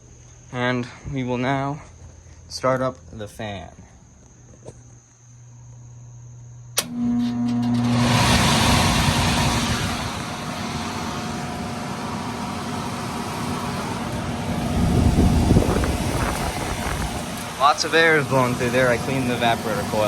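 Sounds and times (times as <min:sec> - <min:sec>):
electric motor hum: 0:04.6 - 0:20.0
blower fan rushing air: 0:06.5 - 0:20.0.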